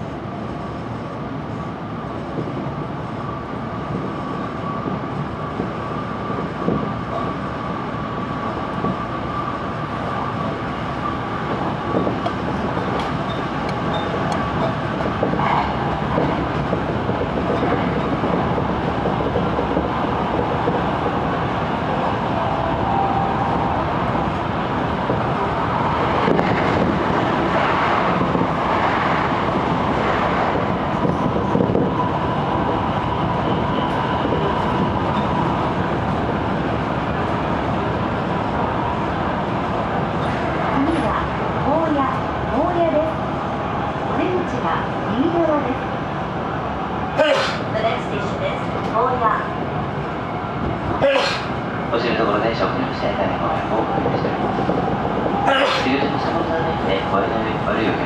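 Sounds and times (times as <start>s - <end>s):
train passing close by: 0.0s - 58.0s
train wheels rumbling on rail: 0.0s - 58.0s.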